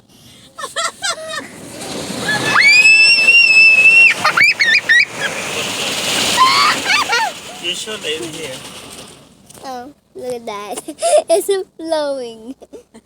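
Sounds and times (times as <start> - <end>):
water jets spraying car: 0.0 - 9.8
high-pitched scream: 2.2 - 7.4.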